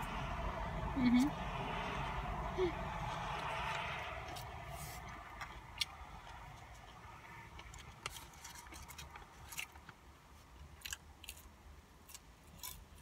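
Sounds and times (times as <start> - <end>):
chewing sandwich: 3.3 - 13.0.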